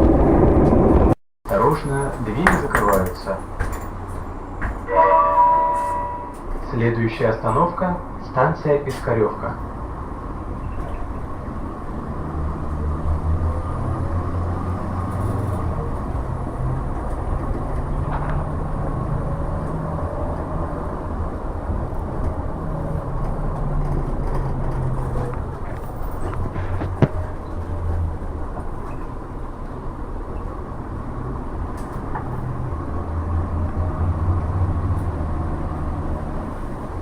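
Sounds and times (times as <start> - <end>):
bus diesel engine droning: 0.0 - 37.0
road rumble: 0.0 - 37.0.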